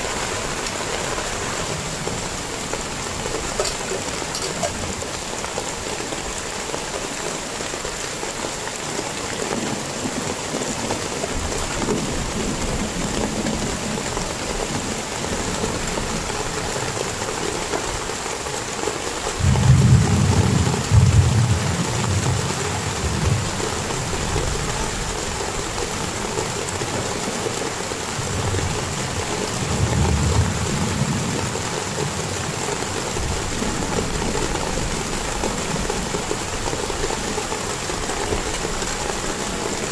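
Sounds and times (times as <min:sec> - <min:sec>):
heavy rain falling: 0:00.0 - 0:39.9
thunder rumbling: 0:19.4 - 0:24.8.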